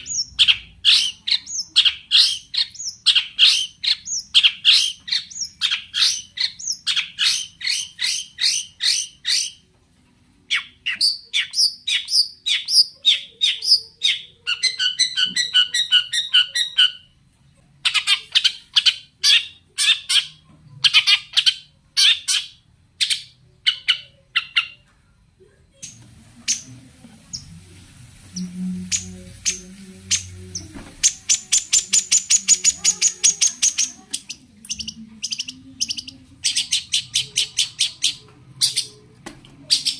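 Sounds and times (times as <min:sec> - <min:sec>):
bird singing harsh scratchy notes: 0:28.3 - 0:38.9.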